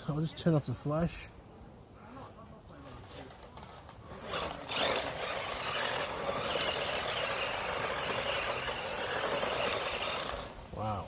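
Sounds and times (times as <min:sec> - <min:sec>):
toy truck motor whirring: 0:03.3 - 0:10.7.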